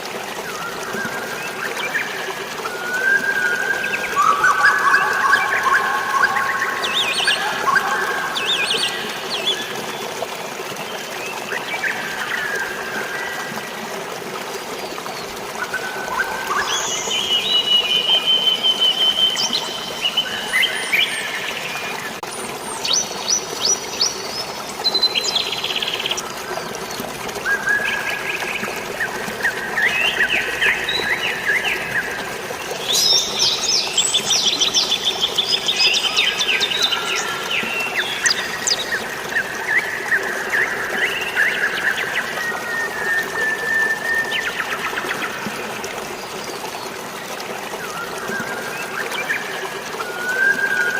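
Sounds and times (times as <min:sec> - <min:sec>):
flowing water: 0:00.0 - 0:50.9
rain: 0:00.0 - 0:50.9
birds singing whistled trills: 0:15.6 - 0:21.9.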